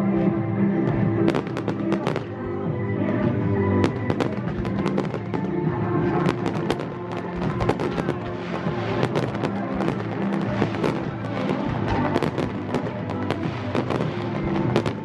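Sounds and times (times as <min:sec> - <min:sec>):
fireworks bangs and crackles: 0:00.0 - 0:15.0
music with sustained chords: 0:00.0 - 0:15.0.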